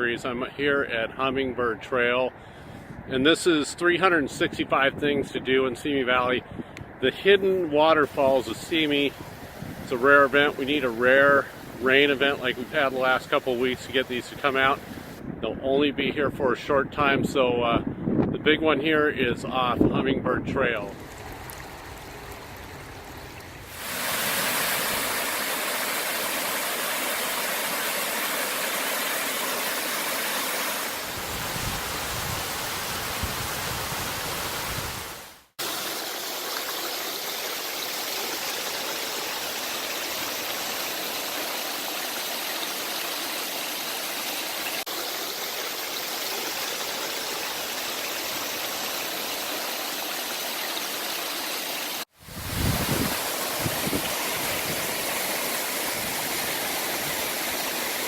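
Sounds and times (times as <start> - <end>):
waterfall rushing: 8.0 - 15.2, 23.7 - 58.0.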